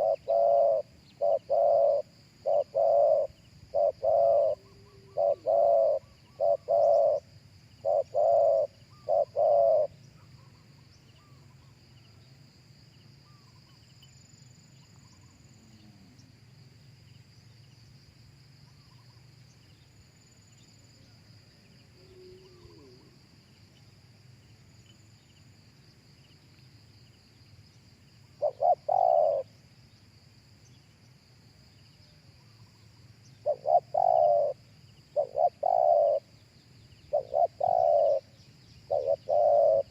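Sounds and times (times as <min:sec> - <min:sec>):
dove cooing: 0:00.0 - 0:10.0, 0:22.0 - 0:23.2, 0:28.4 - 0:29.5, 0:33.4 - 0:36.3, 0:37.0 - 0:38.3, 0:38.9 - 0:39.9.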